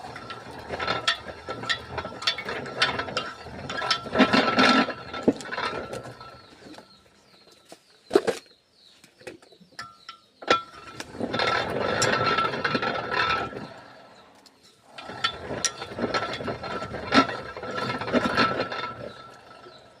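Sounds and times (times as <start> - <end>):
roller machine ratcheting clatter: 0.0 - 7.1, 9.8 - 20.0.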